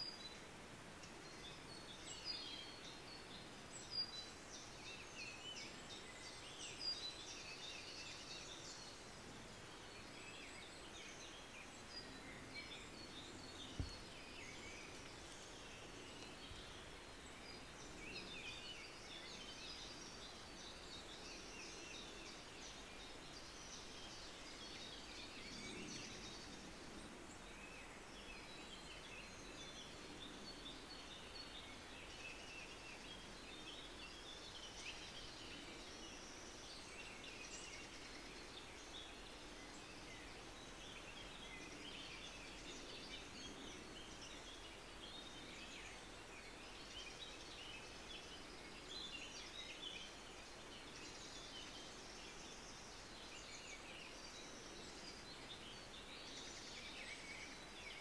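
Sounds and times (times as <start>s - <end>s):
steady background hiss: 0.0s - 58.0s.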